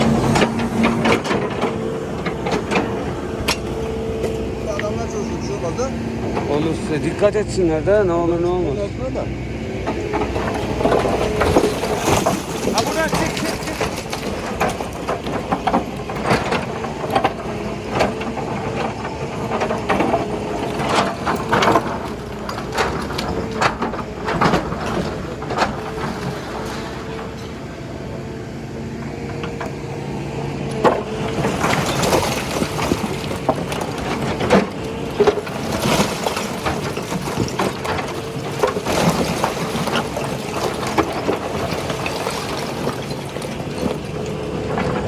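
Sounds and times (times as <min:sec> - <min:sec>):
excavator engine drone: 0:00.0 - 0:45.0
building material cracking: 0:10.0 - 0:27.4.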